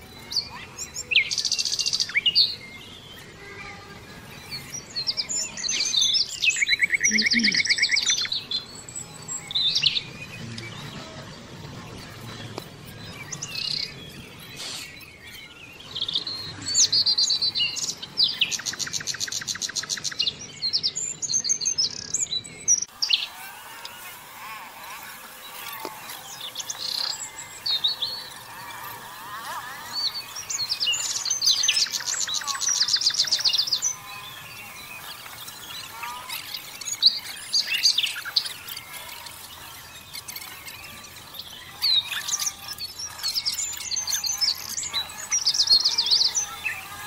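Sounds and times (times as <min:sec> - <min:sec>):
small birds chirping: 0:00.0 - 0:47.0
bird rapid trill: 0:22.7 - 0:47.0.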